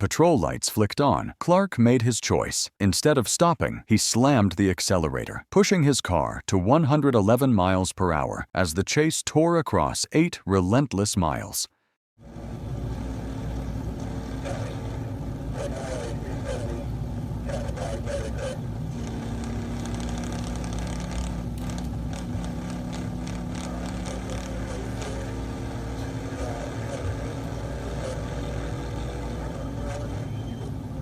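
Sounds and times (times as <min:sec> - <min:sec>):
constant hum: 0:12.2 - 0:31.0
motor vehicle running: 0:12.2 - 0:31.0
road noise: 0:12.2 - 0:31.0.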